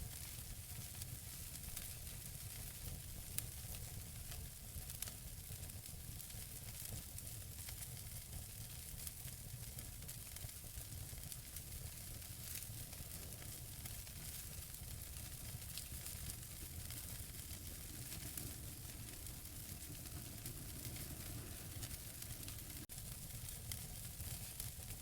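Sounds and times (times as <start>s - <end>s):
logs crackling and popping: 6.2s - 25.0s
flames hissing: 11.4s - 25.0s.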